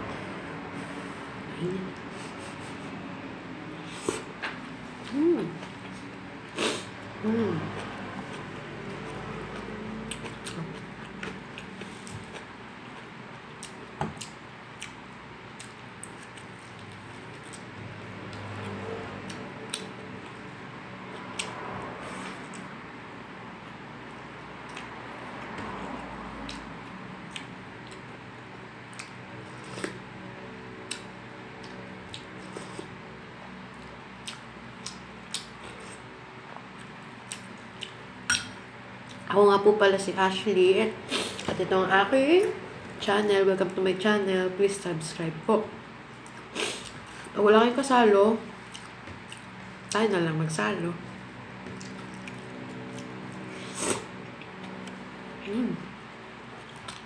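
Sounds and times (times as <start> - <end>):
low steady hum: 0.0 - 57.0
chewing: 7.7 - 15.0, 27.3 - 28.1, 33.7 - 36.0, 48.6 - 49.5, 51.6 - 55.1
wet chewing and lip-smacking: 26.5 - 28.1, 33.7 - 36.0, 36.6 - 38.0, 48.6 - 50.0, 51.6 - 53.2.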